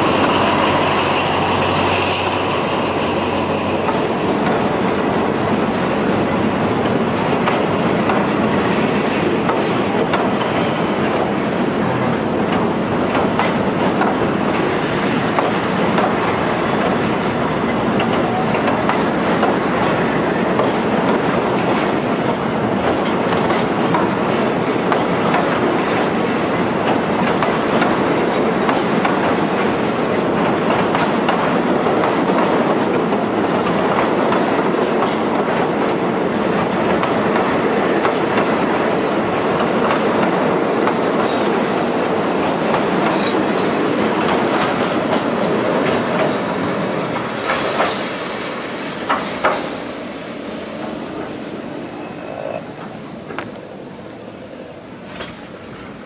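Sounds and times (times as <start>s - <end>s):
train wheels clattering on bridge: 0.0s - 53.9s.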